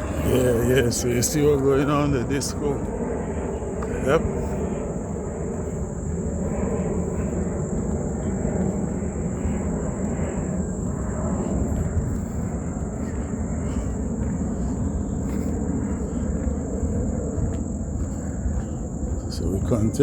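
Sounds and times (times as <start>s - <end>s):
insect drone: 0.0s - 20.0s.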